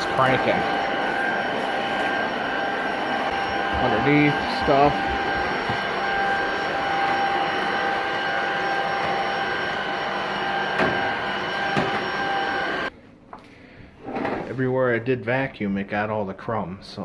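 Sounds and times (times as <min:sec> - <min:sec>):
stick vacuum running: 0:00.0 - 0:12.9.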